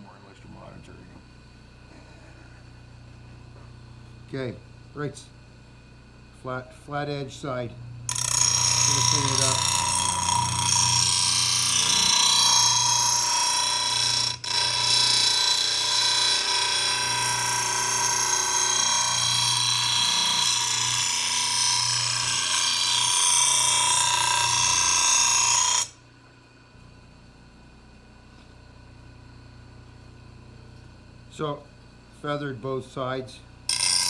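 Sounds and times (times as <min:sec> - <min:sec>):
angle grinder grinding steel: 0:08.1 - 0:26.0, 0:33.7 - 0:34.0.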